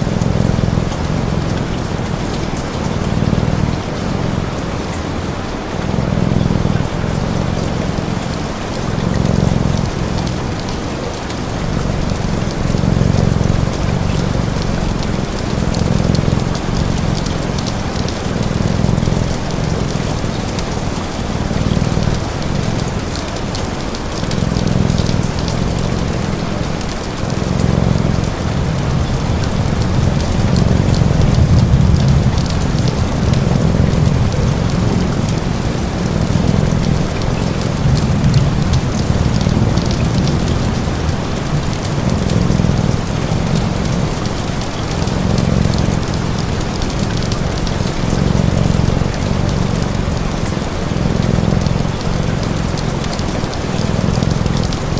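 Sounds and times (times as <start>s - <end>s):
cat purring: 0.0s - 54.9s
steady rain hiss: 0.0s - 54.9s.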